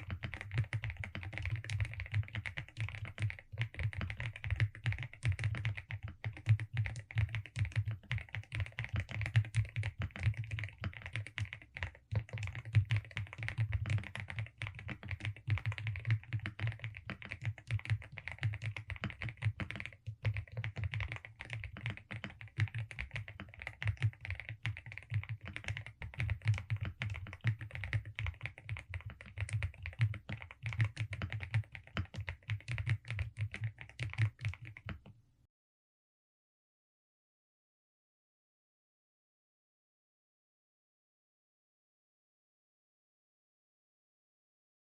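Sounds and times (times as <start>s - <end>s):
mechanical keyboard typing: 0.0s - 35.1s.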